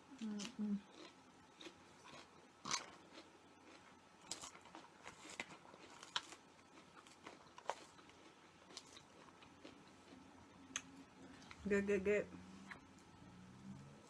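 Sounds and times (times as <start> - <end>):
person chewing food: 0.2 - 11.6, 12.5 - 13.1.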